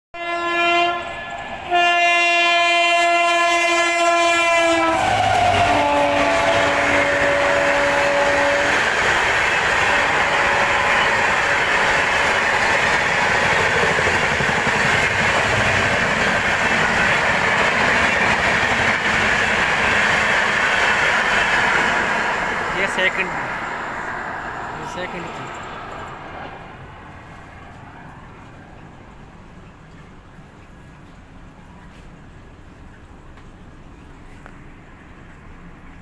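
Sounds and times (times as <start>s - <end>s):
train horn: 0.1s - 13.6s
train wheels clattering on rails: 4.8s - 36.0s.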